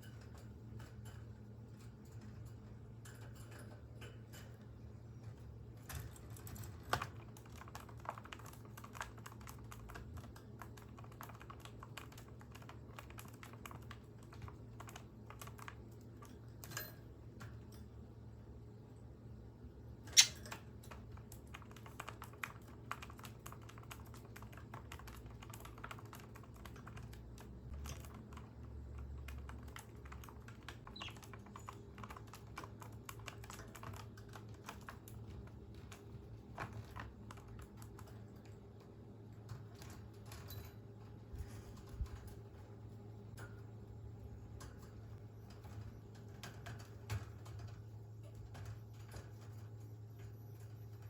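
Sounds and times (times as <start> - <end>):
budgerigar clicking in cage: 20.1 - 20.6.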